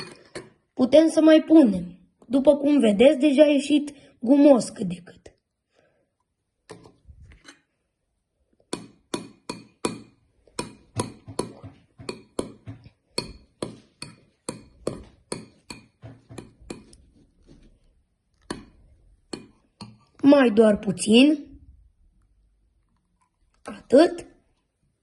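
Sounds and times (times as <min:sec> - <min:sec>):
spoon knocking bowl stirring slime: 0:00.0 - 0:00.7, 0:06.2 - 0:07.8, 0:08.5 - 0:21.0.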